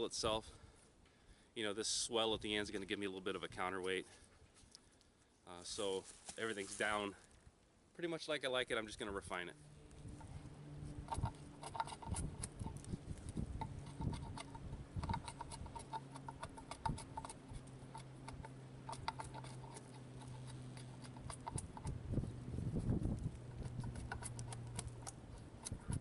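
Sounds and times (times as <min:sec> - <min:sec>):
low hum: 0:08.8 - 0:26.0
blade shaving wood: 0:10.2 - 0:26.0.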